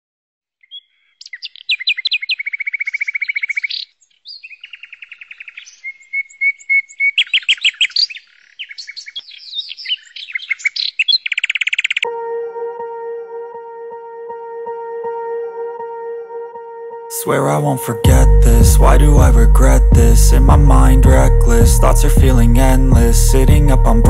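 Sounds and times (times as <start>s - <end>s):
songbirds chirping and trilling: 0.5s - 12.1s
music with ringing tones: 12.0s - 24.0s.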